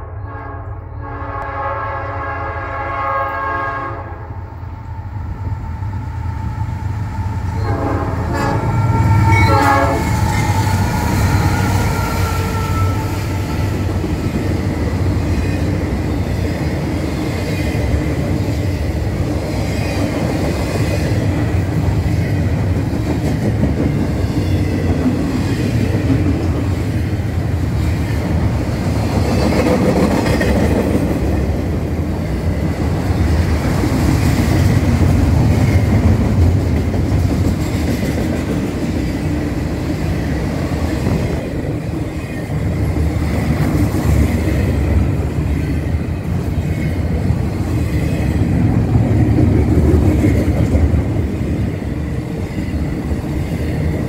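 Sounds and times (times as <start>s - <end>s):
train horn blowing: 0.0s - 4.6s, 7.5s - 13.9s
diesel locomotives passing: 0.0s - 54.0s
freight cars clickety-clack: 7.6s - 54.0s.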